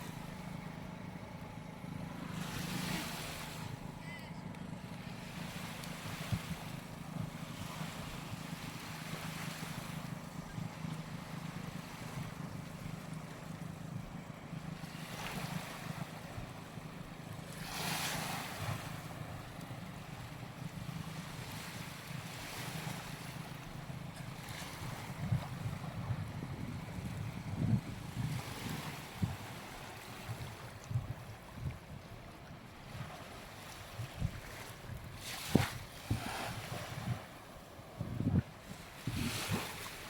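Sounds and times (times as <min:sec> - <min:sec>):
wind rumble on microphone: 0:05.4 - 0:12.7, 0:20.1 - 0:40.0
waves washing up sand: 0:34.4 - 0:37.4, 0:38.3 - 0:40.0.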